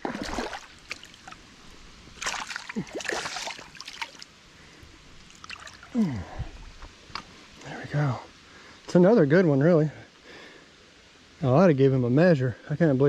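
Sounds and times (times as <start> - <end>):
water splashing and sloshing: 0.0 - 7.6.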